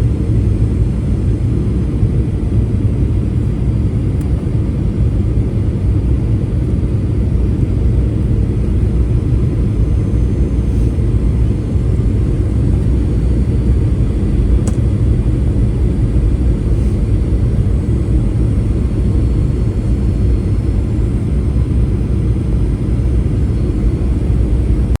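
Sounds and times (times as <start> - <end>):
jet engines rumbling: 0.0 - 25.0
faint high whine: 7.5 - 25.0.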